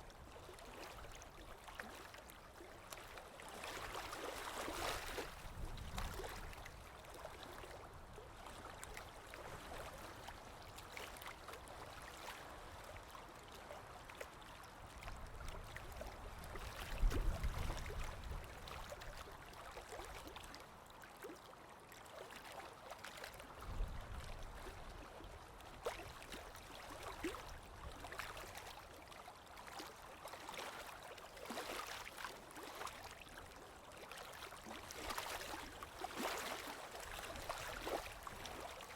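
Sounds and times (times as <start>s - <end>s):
water trickling and gurgling: 0.0s - 38.9s.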